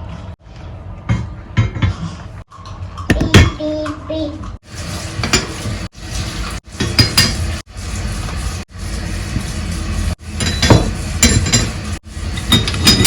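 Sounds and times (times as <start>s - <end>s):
kitchen items clinking and knocking: 6.8s - 7.5s, 10.4s - 13.0s.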